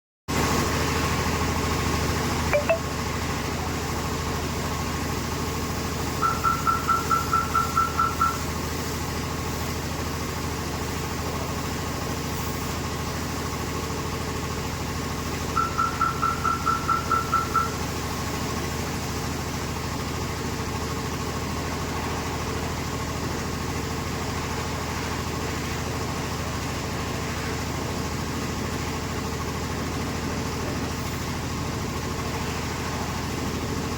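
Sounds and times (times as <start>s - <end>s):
brief chirp: 2.6s - 2.8s
rapid high-pitched beeps: 2.6s - 2.8s, 6.2s - 8.4s, 15.6s - 17.8s.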